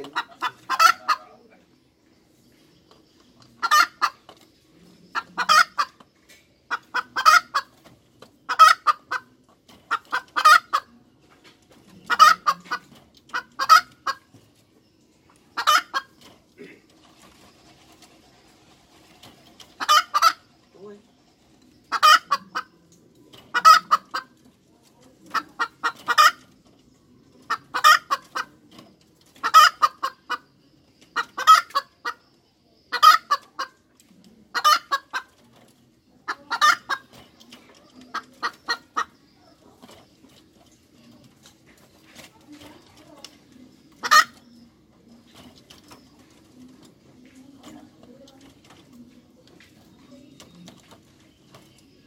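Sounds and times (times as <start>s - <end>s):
hen cackling: 0.0s - 1.6s, 3.6s - 4.3s, 5.1s - 6.0s, 6.7s - 7.7s, 8.5s - 9.3s, 9.9s - 11.0s, 12.0s - 14.3s, 15.5s - 16.8s, 19.8s - 20.5s, 21.8s - 22.8s, 23.5s - 24.4s, 25.3s - 26.5s, 27.4s - 28.6s, 29.4s - 30.5s, 31.1s - 32.2s, 32.9s - 33.8s, 34.5s - 35.3s, 36.2s - 37.2s, 37.8s - 39.6s, 43.9s - 44.6s.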